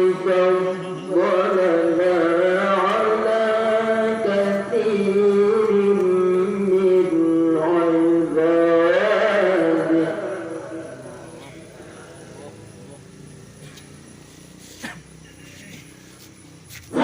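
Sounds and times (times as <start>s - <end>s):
man reciting melodically: 0.0s - 13.3s.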